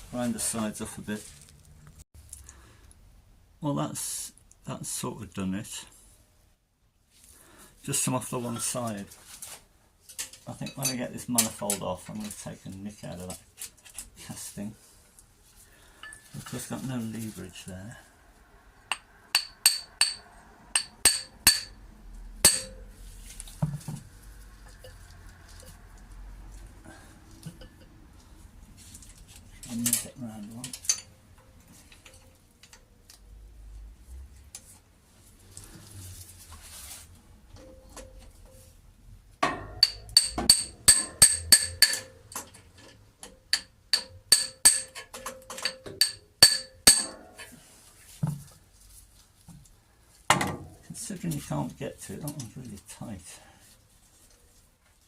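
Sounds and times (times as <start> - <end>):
metal tools clinking on metal: 29.6 - 31.2
spanner knocking on metal nut: 39.4 - 42.5, 43.2 - 47.1.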